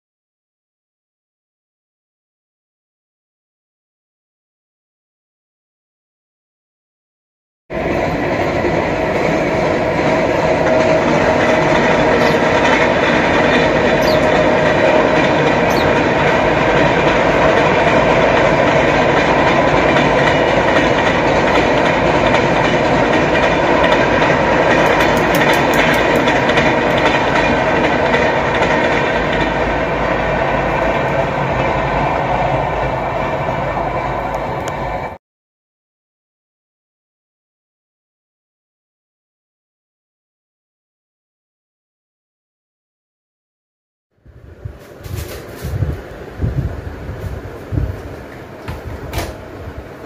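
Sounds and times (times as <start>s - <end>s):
train wheels on rails: 7.7s - 35.2s, 44.3s - 50.0s.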